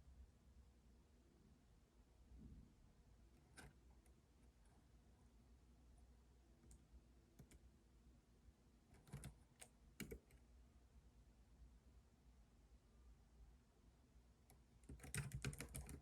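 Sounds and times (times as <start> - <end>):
computer keyboard keystrokes: 9.0 - 10.4, 14.8 - 16.0.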